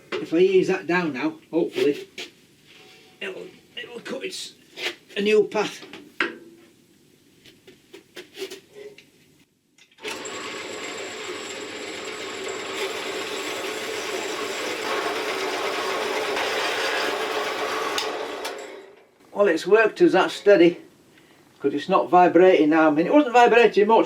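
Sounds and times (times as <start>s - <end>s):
metal bandsaw cutting steel: 10.0s - 19.0s.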